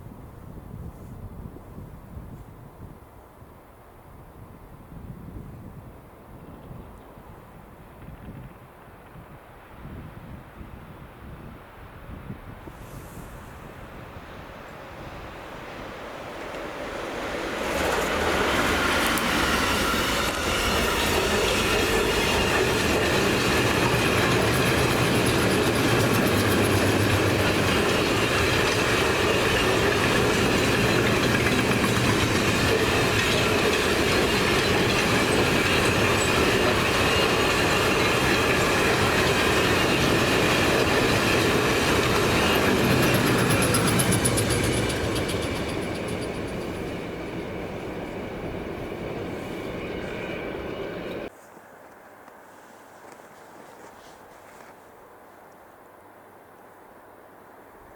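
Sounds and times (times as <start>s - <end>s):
train rolling past: 3.6s - 51.3s
wheels squealing on rails: 12.6s - 51.3s.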